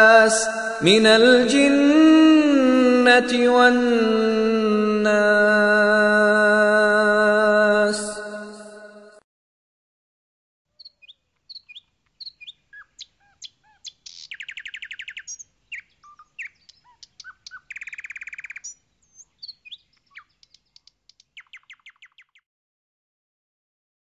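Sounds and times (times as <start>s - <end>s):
bird trill: 10.8s - 22.4s
songbirds chirping and whistling: 10.8s - 22.4s.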